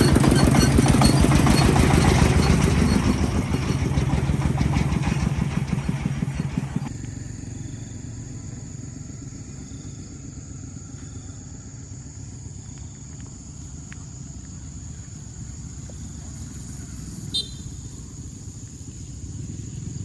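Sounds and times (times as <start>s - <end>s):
engine pulsing low: 0.0s - 20.0s
steady high-pitched whine: 6.7s - 20.0s.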